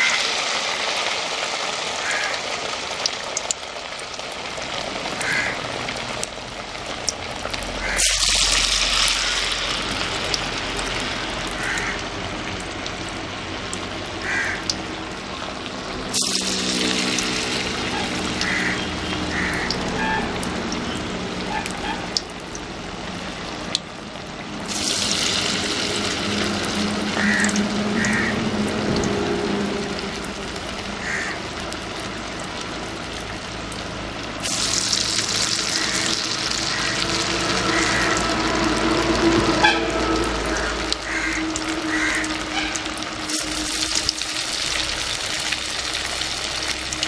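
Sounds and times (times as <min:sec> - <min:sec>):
food sizzling in hot oil: 0:00.0 - 0:47.0
crows calling: 0:02.0 - 0:02.4, 0:05.2 - 0:05.7, 0:07.8 - 0:08.1, 0:11.6 - 0:12.1, 0:14.2 - 0:14.8, 0:18.0 - 0:20.2, 0:27.1 - 0:28.5, 0:31.0 - 0:31.5, 0:35.7 - 0:38.4, 0:40.5 - 0:43.6
ducks calling: 0:05.2 - 0:05.6, 0:11.6 - 0:12.1, 0:14.2 - 0:14.7, 0:17.9 - 0:20.3, 0:27.2 - 0:28.4, 0:31.0 - 0:31.4, 0:35.7 - 0:38.4, 0:40.5 - 0:43.6.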